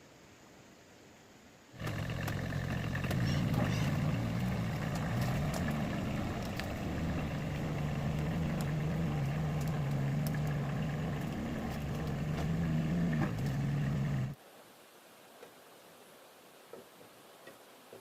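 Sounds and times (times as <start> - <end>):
engine running steadily: 1.8 - 14.4.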